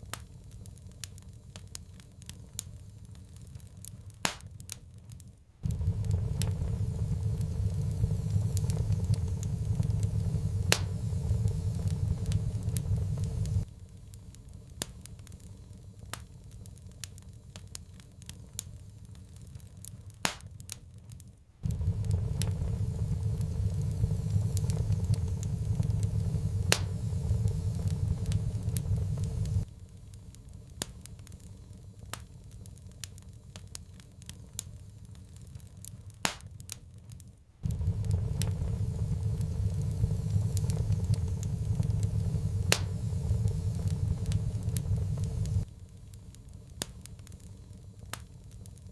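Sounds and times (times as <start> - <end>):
wood fire crackling: 0.0 - 48.9
low rumble: 5.6 - 13.8, 21.6 - 29.8, 37.6 - 46.1.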